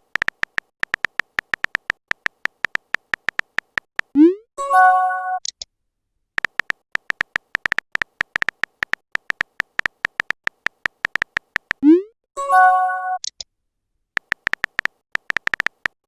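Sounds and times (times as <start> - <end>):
keyboard typing clicks: 0.0 - 4.3, 6.4 - 12.0, 14.2 - 16.0
chime-like message tone: 12.4 - 13.2.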